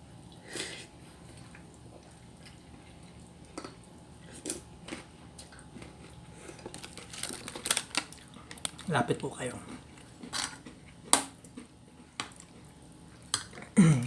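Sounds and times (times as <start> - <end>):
person chewing: 0.6 - 8.9.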